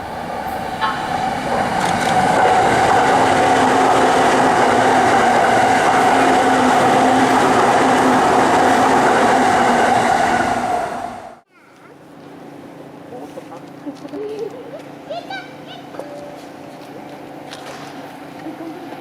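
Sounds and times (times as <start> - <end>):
wheels on rails: 0.0 - 11.4
electric train passing: 0.0 - 11.5.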